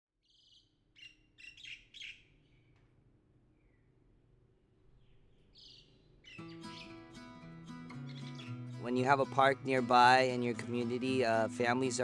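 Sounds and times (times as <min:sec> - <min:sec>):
faint bird chirps: 0:00.2 - 0:02.9, 0:03.6 - 0:04.0, 0:04.9 - 0:07.0.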